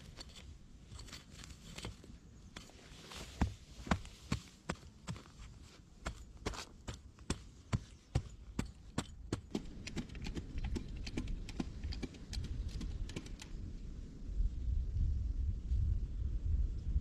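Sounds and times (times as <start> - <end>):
sharp knocks and taps: 7.3 - 13.4.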